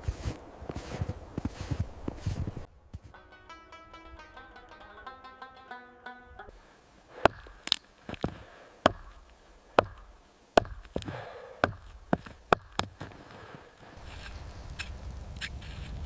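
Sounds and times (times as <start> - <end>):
sharp chopping knocks: 7.2 - 9.2, 9.8 - 13.1.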